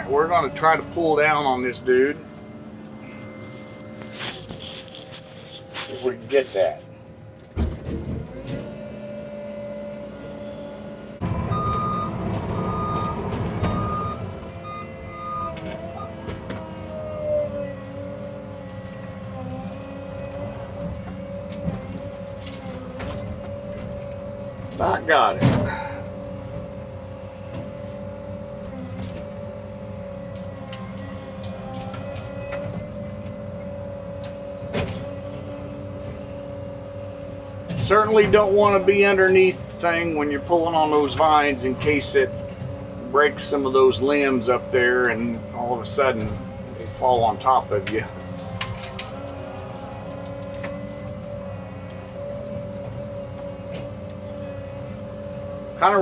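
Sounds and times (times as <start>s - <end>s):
excavator diesel engine running: 0.0s - 56.0s
hydraulic whine: 0.0s - 56.0s
travel alarm beeping: 0.4s - 5.1s, 11.3s - 16.2s.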